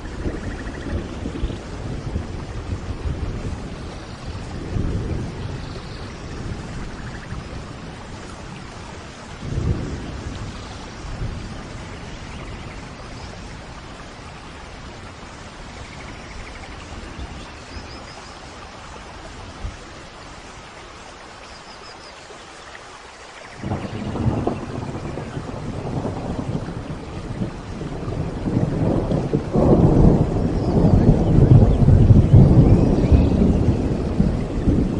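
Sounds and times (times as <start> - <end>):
thunder rolling: 0.0 - 13.8, 23.6 - 34.9
steady rain: 0.0 - 34.9.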